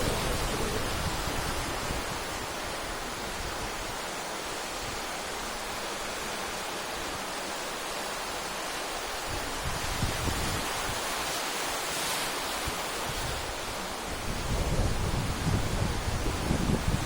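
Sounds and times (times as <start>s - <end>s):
sea surf breaking: 0.0s - 17.0s.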